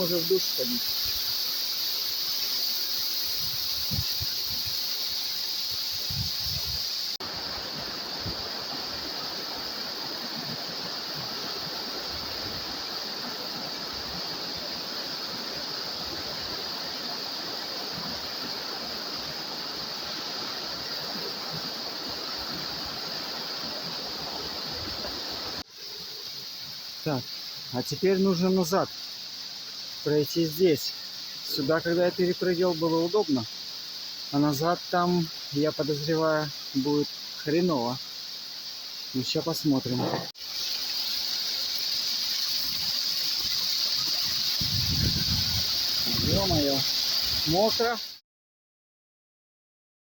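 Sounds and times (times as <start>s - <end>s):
waterfall rushing water: 0.0s - 48.2s.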